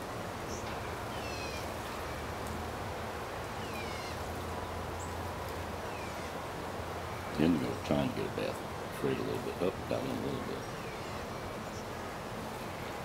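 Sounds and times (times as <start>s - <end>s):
low outdoor background hum: 0.0s - 13.0s.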